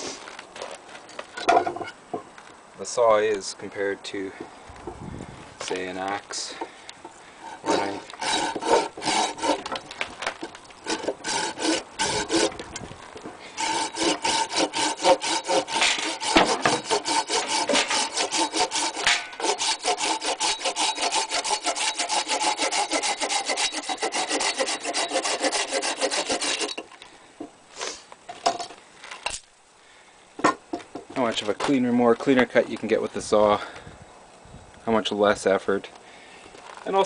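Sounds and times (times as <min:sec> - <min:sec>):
hand saw cutting wood: 0:07.4 - 0:12.6, 0:13.4 - 0:26.9.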